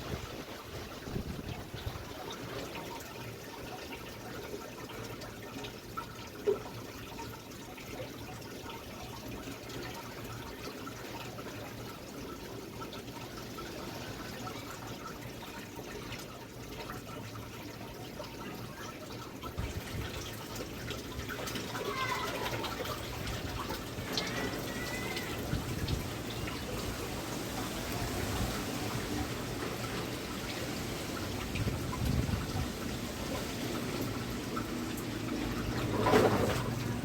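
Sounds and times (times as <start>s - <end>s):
strong wind rushing: 30.4s - 33.4s.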